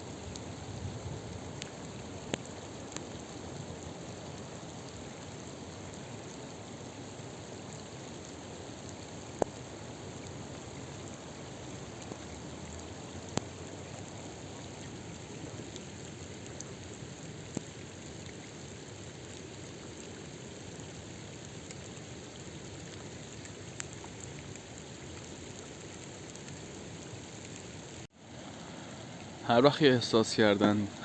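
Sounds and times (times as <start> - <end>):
water noise: 0.0 - 31.0.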